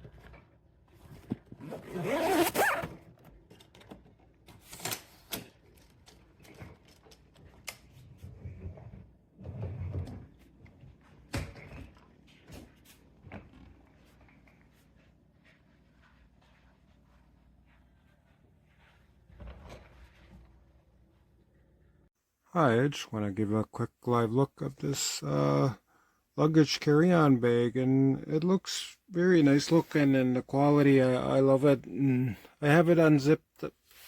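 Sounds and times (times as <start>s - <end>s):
suitcase rasping: 1.6s - 2.9s.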